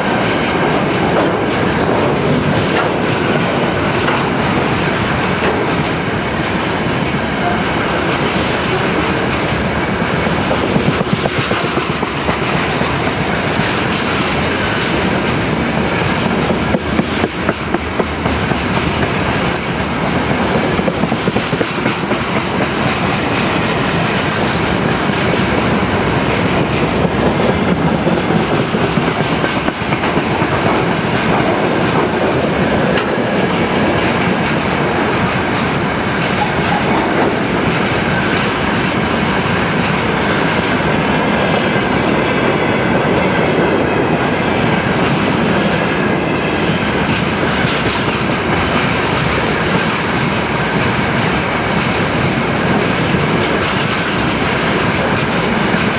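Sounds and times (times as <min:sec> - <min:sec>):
train wheels clattering on rails: 0:00.0 - 0:55.9
high-pitched wheel squeals: 0:19.0 - 0:23.4, 0:27.2 - 0:31.0, 0:38.7 - 0:40.7, 0:41.9 - 0:44.2, 0:45.4 - 0:47.4.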